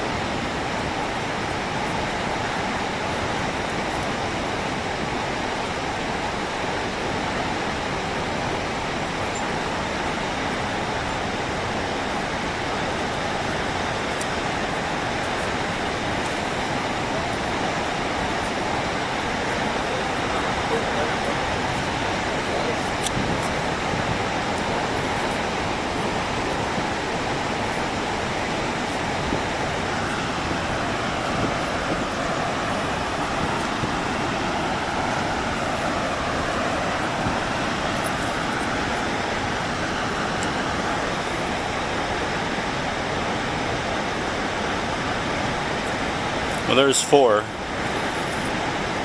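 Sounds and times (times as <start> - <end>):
waterfall roaring: 0.0 - 49.0.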